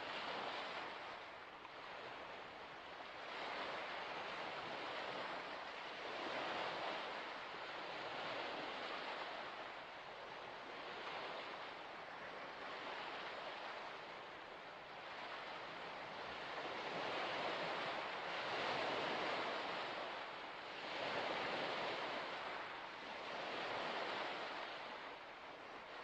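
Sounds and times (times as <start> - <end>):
waves washing in: 0.0 - 26.0.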